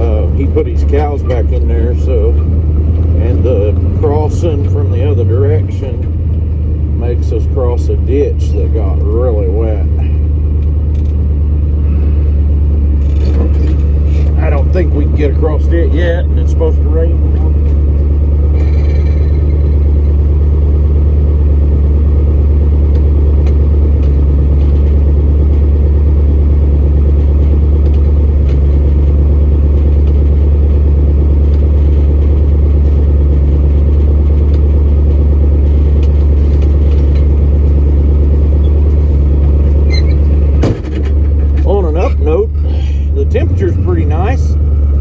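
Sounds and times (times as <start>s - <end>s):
pickup truck engine drone: 0.0s - 45.0s.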